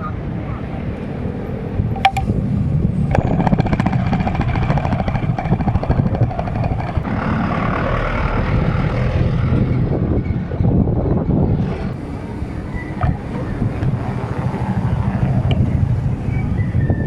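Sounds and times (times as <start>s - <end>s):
road noise: 0.0s - 17.0s
wind on microphone: 0.0s - 17.0s
fast regular ticking: 2.0s - 7.2s.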